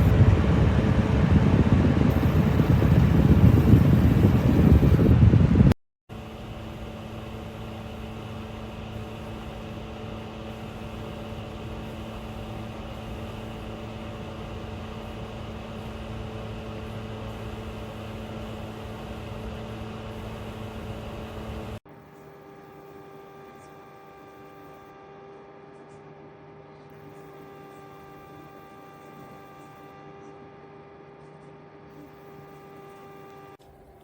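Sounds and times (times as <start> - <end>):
cooler fan running: 0.0 - 21.8.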